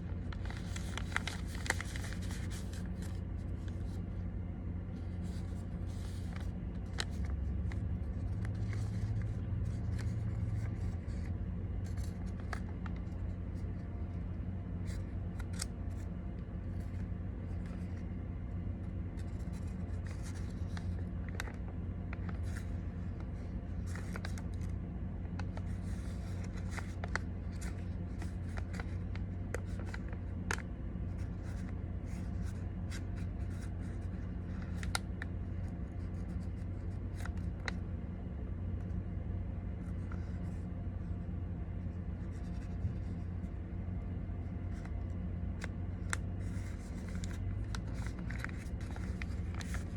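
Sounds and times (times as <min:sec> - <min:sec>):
crisp paper creasing clicks: 0:00.0 - 0:37.9, 0:39.7 - 0:41.2, 0:42.1 - 0:49.9
paper rustling and crinkling: 0:00.0 - 0:37.9, 0:39.7 - 0:49.9
steady low hum: 0:00.0 - 0:49.9.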